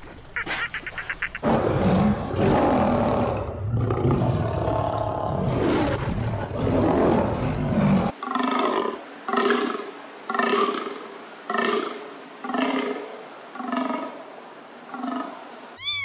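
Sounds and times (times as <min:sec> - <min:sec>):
tiger roaring and growling: 0:01.4 - 0:09.0.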